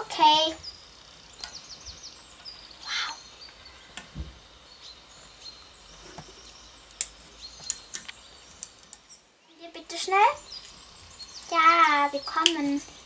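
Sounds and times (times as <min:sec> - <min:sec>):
birds chirping and calling: 0:00.0 - 0:13.0
harsh bird squawk: 0:01.4 - 0:04.2
sharp clicks: 0:06.9 - 0:09.0.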